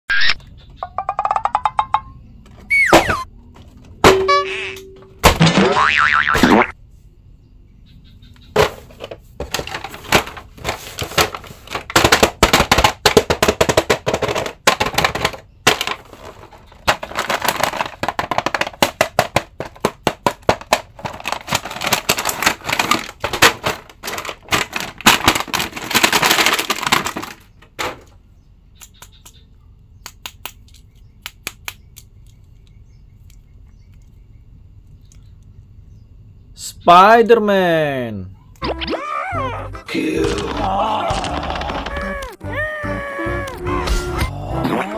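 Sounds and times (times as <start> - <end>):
packaging crackling and snapping: 9.5 - 27.5.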